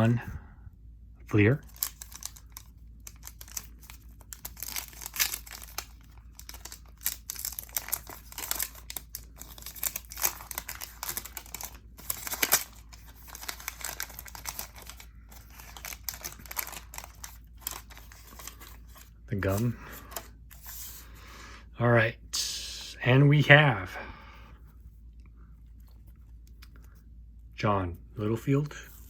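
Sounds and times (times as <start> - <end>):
wrapper tearing and crinkling: 1.6 - 19.7.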